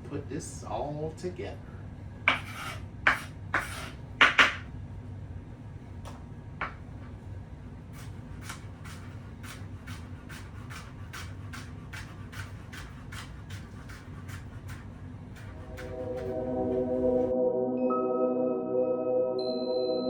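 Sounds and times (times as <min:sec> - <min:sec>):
knife chopping on cutting board: 0:02.3 - 0:04.6, 0:08.4 - 0:16.4.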